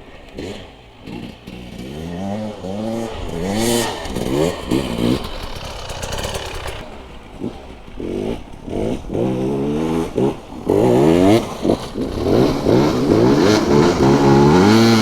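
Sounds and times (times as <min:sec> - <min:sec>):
dirt bike engine revving: 0:00.2 - 0:15.0.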